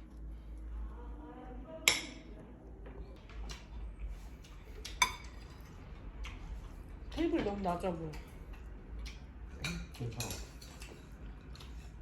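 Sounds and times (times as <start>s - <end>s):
dishes and cutlery clinking: 4.8s - 5.8s, 9.5s - 12.0s.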